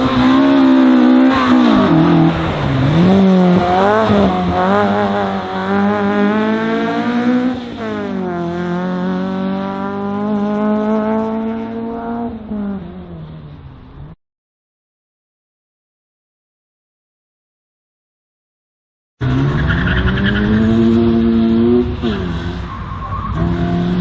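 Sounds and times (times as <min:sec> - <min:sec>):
race car engine revving: 0:00.0 - 0:13.4, 0:19.2 - 0:24.0.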